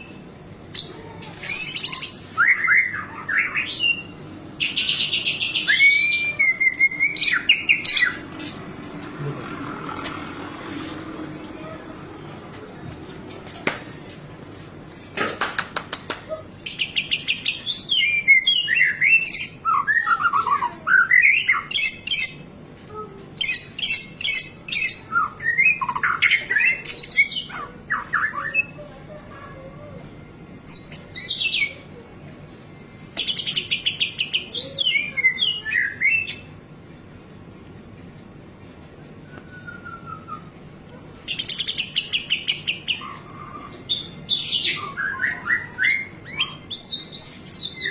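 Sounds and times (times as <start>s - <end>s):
bird singing trills and whistles: 0.8s - 8.7s, 16.6s - 22.5s, 23.4s - 28.9s, 33.2s - 36.6s, 39.2s - 47.9s.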